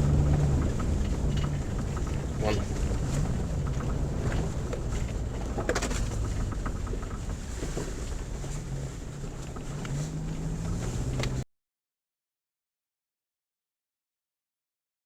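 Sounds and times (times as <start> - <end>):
car engine and road rumble: 0.0 - 11.5.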